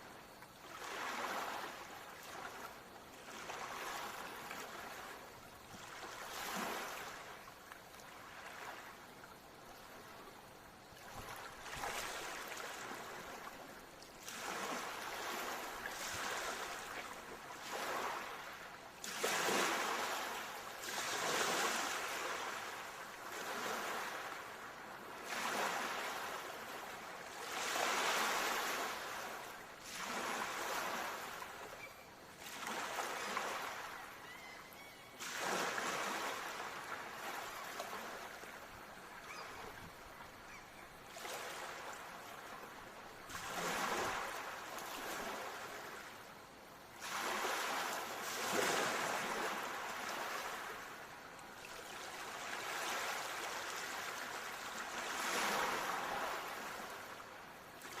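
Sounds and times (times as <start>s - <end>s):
ocean waves breaking: 35.2s - 46.1s.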